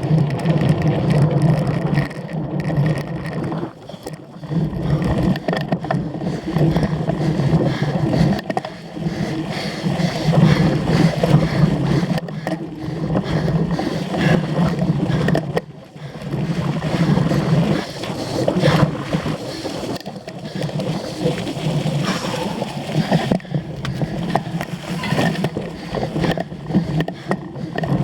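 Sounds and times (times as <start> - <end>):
bike rattling over rough ground: 0.0 - 28.0
wind rumble: 21.8 - 26.7.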